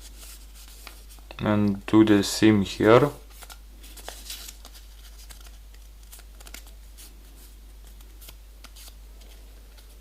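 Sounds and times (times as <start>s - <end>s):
paper being folded and creased: 3.3s - 10.0s.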